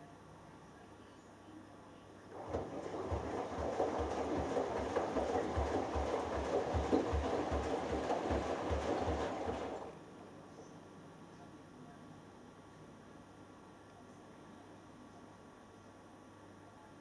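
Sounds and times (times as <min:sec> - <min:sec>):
water and laundry sloshing: 0:02.3 - 0:10.0
washing machine drum thumps: 0:02.4 - 0:09.9.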